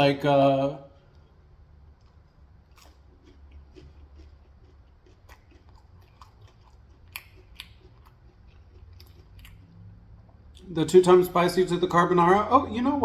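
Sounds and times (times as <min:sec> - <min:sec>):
person chewing food: 0:01.0 - 0:10.7
mouth clicks and smacks: 0:02.8 - 0:10.7.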